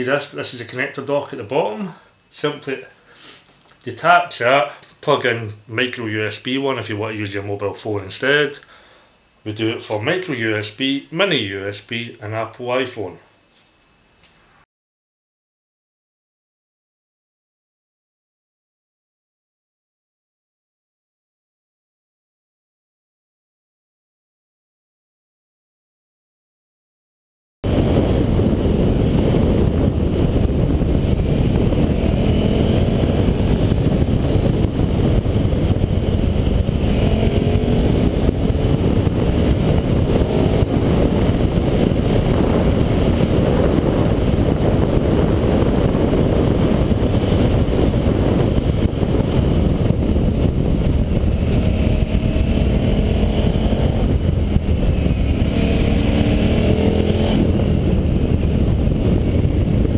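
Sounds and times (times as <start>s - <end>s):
loud rushing noise: 27.6s - 59.9s
motorcycle engine revving: 27.7s - 59.9s.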